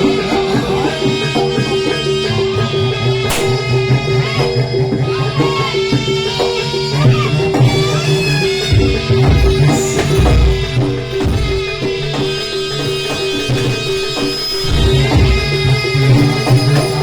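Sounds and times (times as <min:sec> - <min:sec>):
percussion ensemble music: 0:00.0 - 0:17.0
deep low drum strokes: 0:08.6 - 0:12.6.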